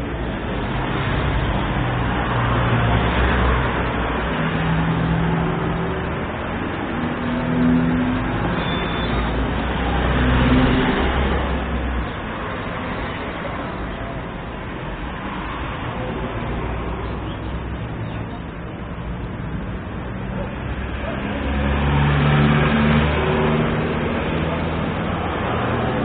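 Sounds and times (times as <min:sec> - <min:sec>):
steady traffic rumble: 0:00.0 - 0:26.0.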